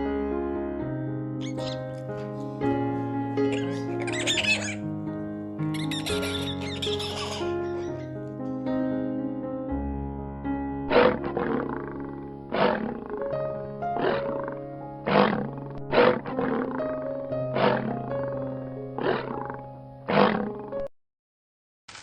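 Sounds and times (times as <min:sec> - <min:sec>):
background music sustained notes: 0:00.1 - 0:20.7
lion roaring: 0:01.4 - 0:02.4, 0:03.4 - 0:04.8, 0:10.9 - 0:20.8.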